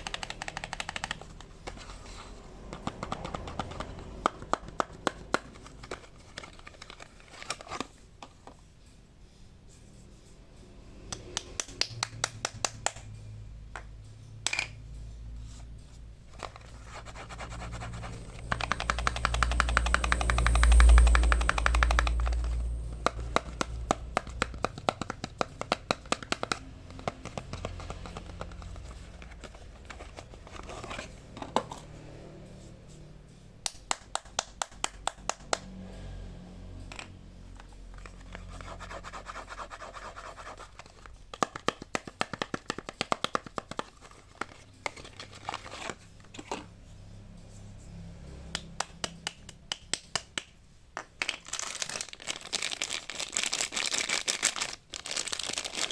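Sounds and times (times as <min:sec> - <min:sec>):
packaging crinkling: 0:51.2 - 0:55.9.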